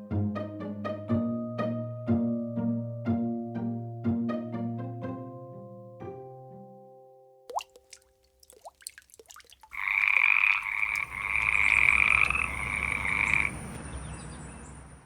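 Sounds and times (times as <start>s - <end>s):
frogs croaking: 9.3s - 13.8s.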